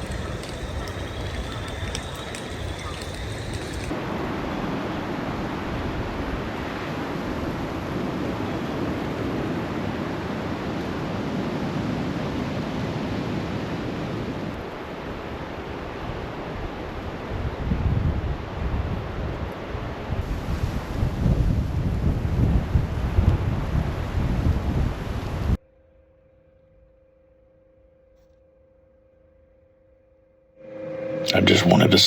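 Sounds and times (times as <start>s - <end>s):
steady rain falling: 0.0s - 3.9s
wind rumble on microphone: 0.0s - 8.7s, 15.2s - 25.6s.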